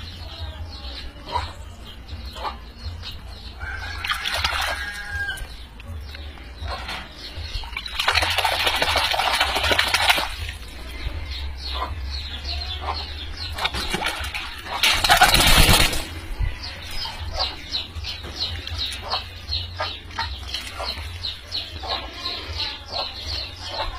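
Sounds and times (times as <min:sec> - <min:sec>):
birds chirping: 0:00.0 - 0:23.9
wings flapping: 0:07.9 - 0:10.4, 0:13.6 - 0:16.3.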